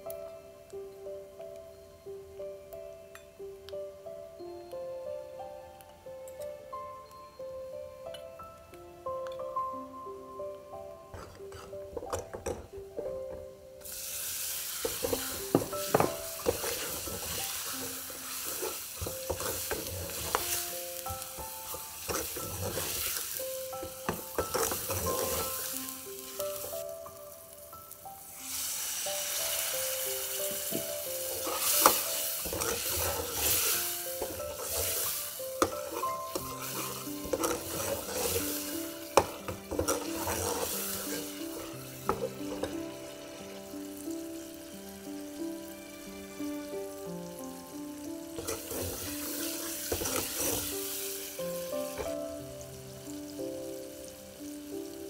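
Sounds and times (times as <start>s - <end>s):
soft background music: 0.0s - 55.0s
food sizzling in oil: 10.8s - 55.0s
metal ladle scraping pot: 11.1s - 12.6s, 14.8s - 20.7s, 21.3s - 25.8s, 30.7s - 42.9s, 48.4s - 50.8s.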